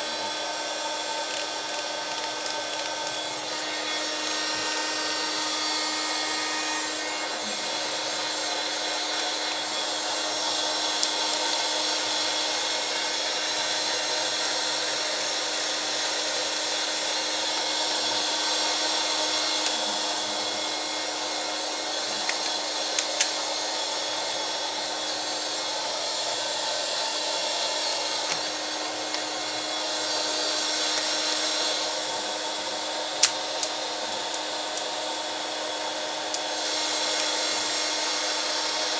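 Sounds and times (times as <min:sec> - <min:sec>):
small vacuum cleaner running: 0:00.0 - 0:38.9.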